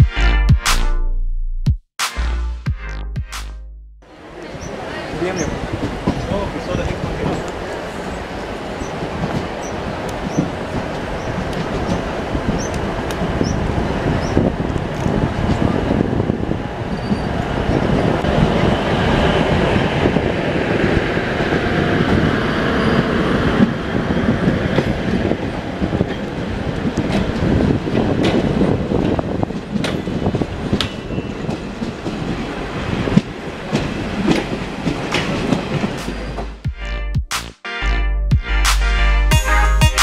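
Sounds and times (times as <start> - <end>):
train wheels rumbling on rails: 4.1 - 36.7
wheels clattering over rail joints: 4.4 - 16.2, 24.7 - 36.6.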